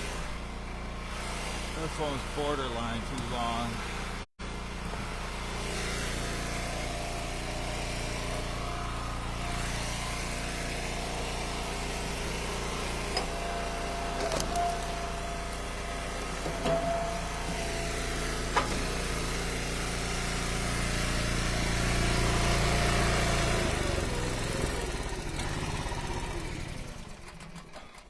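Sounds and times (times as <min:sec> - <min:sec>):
wood splitter engine running: 0:00.0 - 0:28.0.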